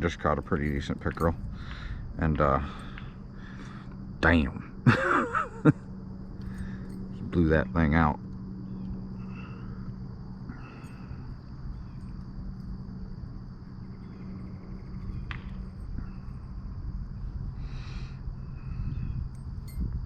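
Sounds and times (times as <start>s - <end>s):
insects droning: 0.0s - 20.0s
low rumbling noise: 0.0s - 20.0s
faint chirps: 8.6s - 12.3s.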